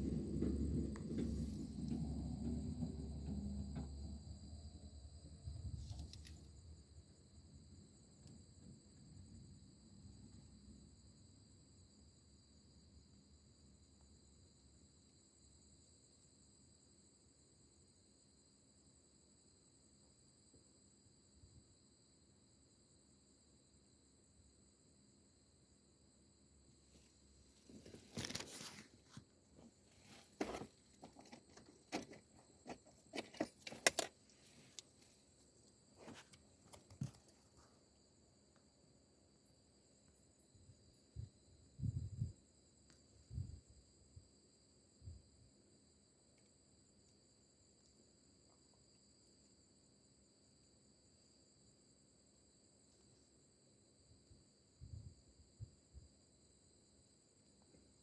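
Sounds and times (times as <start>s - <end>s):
low rumble: 0.0s - 5.2s
insects chirring: 0.0s - 58.0s
handling clicks and rustles: 27.6s - 37.7s.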